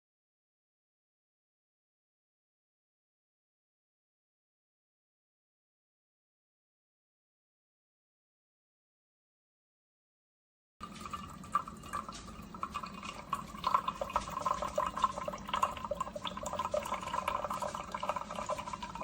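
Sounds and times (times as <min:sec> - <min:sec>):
coffee maker humming: 0:10.8 - 0:19.0
coffee trickling into cup: 0:10.8 - 0:19.0.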